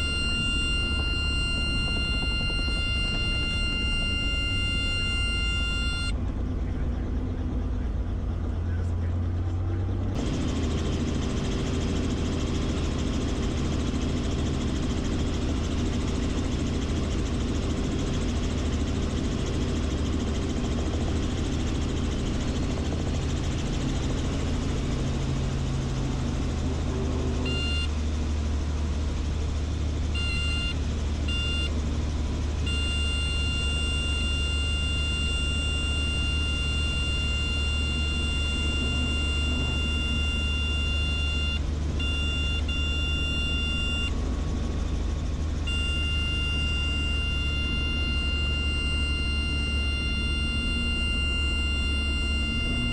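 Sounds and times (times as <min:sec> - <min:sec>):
warning horn: 0:00.0 - 0:06.1, 0:32.6 - 0:44.1, 0:45.6 - 0:52.9
helicopter engine and rotor: 0:00.0 - 0:52.9.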